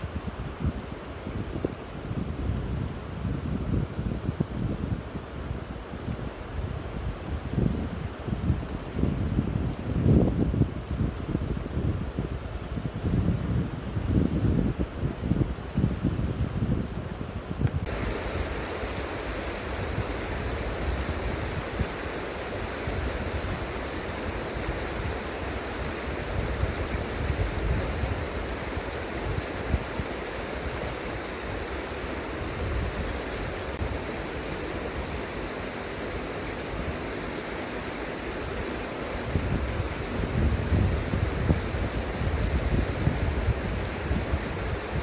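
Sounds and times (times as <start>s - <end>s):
wind buffeting microphone: 0.0s - 45.0s
flowing river water: 17.8s - 45.0s.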